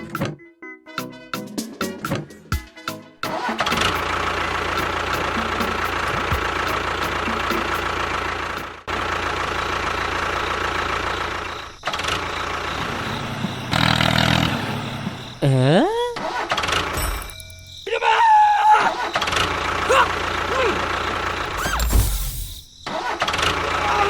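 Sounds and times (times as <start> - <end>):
small motor whining: 19.3 - 23.8.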